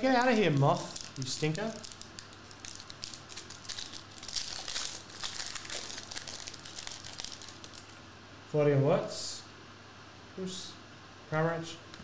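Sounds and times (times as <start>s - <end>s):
wrapper crinkling: 0.0s - 8.0s.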